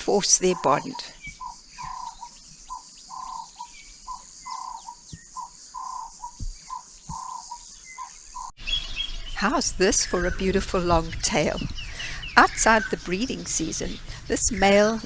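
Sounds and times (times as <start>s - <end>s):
bird calling: 0.0s - 15.0s
high-pitched insect drone: 1.3s - 8.5s.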